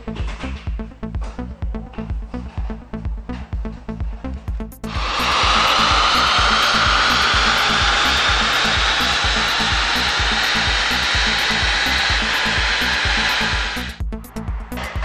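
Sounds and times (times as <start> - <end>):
electronic music with steady beat: 0.0 - 15.0
diesel engine at full throttle: 4.9 - 14.0.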